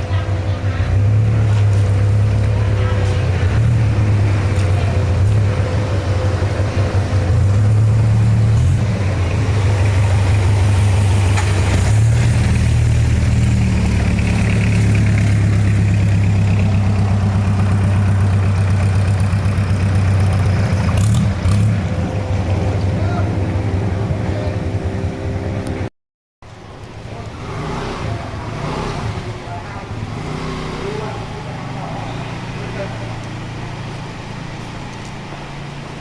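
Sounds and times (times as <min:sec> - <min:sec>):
motorboat engine humming: 0:00.0 - 0:25.9.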